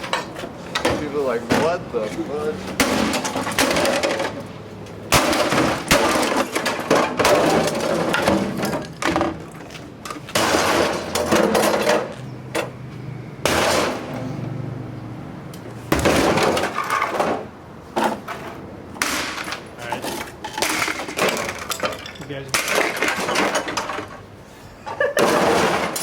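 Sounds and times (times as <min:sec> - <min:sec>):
parts cracking and clattering: 0:02.7 - 0:12.8, 0:15.5 - 0:24.3, 0:24.9 - 0:26.0.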